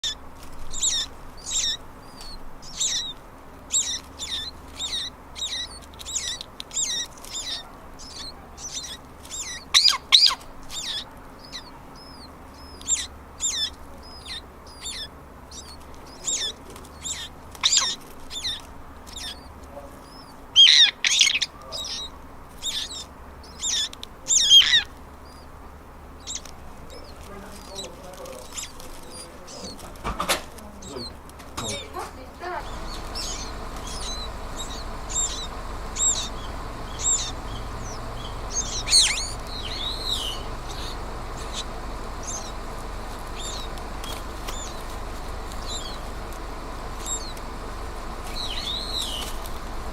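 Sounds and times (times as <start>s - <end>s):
sparrows chirping: 0.0s - 49.9s.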